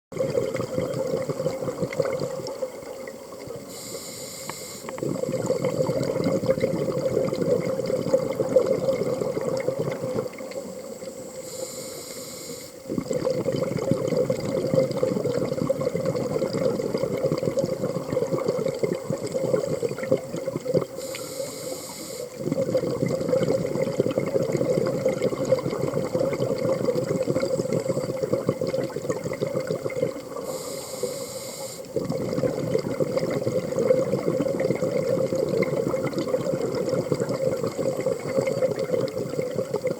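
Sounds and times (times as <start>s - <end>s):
rushing bubbles: 0.1s - 3.7s, 4.9s - 11.4s, 12.8s - 21.2s, 22.3s - 30.6s, 31.8s - 39.9s
diver inhaling through regulator: 3.7s - 5.7s, 11.3s - 12.9s, 20.9s - 22.7s, 30.3s - 32.5s.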